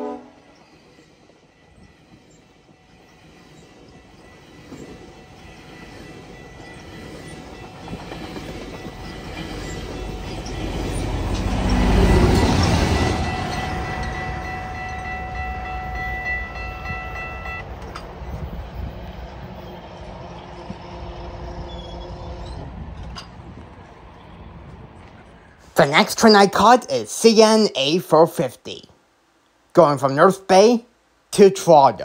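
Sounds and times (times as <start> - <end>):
train rumbling past: 0.0 - 27.8
steady high tones: 0.5 - 18.4
wheels clicking over rail joints: 0.5 - 20.8, 21.6 - 25.6.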